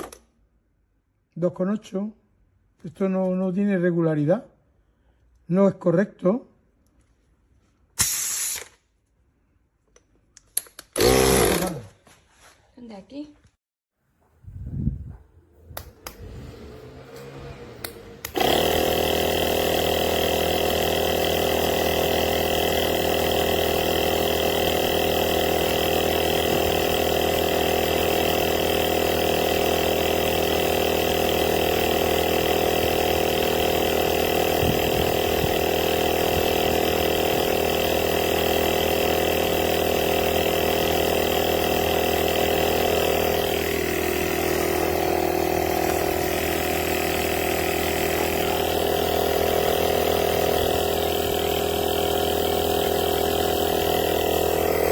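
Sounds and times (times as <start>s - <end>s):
tyre inflator compressor running: 10.8s - 11.8s, 15.7s - 54.9s.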